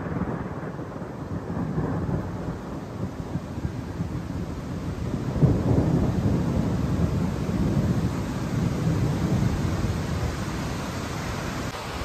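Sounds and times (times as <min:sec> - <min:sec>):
torrential rain pouring: 0:00.0 - 0:12.0.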